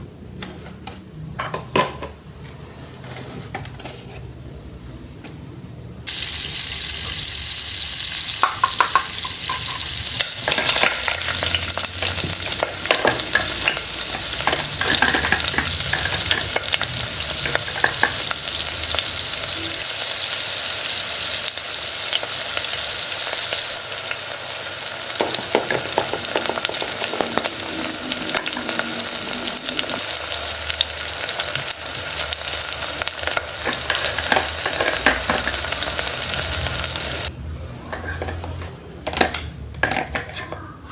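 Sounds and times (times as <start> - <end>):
food sizzling in a pan: 6.1 - 37.3.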